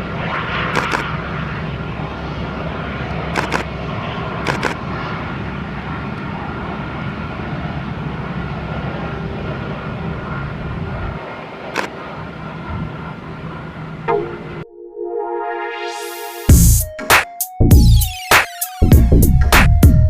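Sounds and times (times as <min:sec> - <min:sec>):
jet engines running: 0:00.0 - 0:14.7
sharp clicks: 0:00.7 - 0:01.1, 0:03.4 - 0:03.7, 0:04.5 - 0:04.8, 0:11.8 - 0:12.0.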